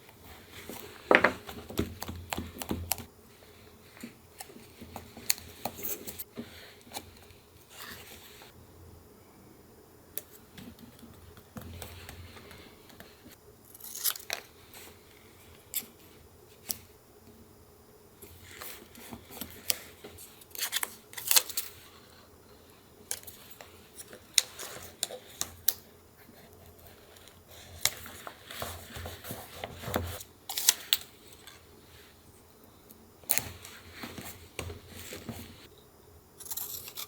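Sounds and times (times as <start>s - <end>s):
paper rustling: 26.2s - 31.6s.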